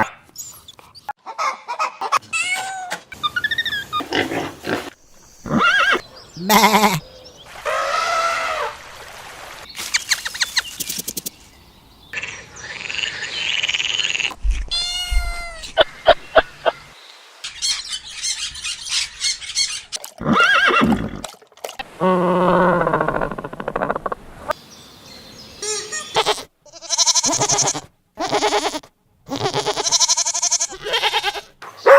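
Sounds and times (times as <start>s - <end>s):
animal calls: 5.4s - 8.8s.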